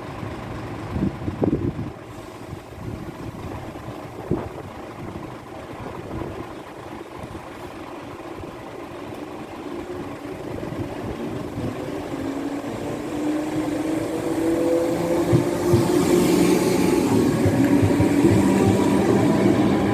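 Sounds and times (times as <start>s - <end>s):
electric train motor whine: 11.2s - 19.9s.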